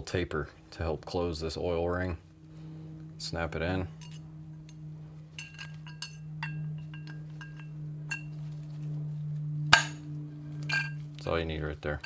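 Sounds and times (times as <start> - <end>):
steady low hum: 0.0 - 12.0
small metal parts clinking: 4.0 - 8.7, 10.6 - 11.4.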